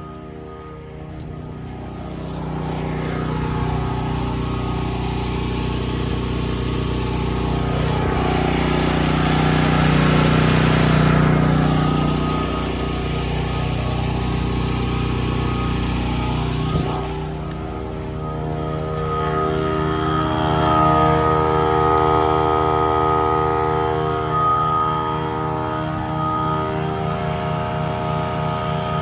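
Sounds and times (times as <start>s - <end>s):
portable generator engine running: 0.0s - 29.0s.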